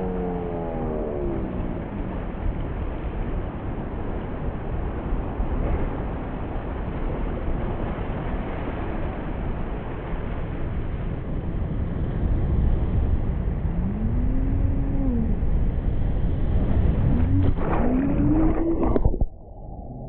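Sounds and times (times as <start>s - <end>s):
whitewater rushing: 16.6s - 20.0s.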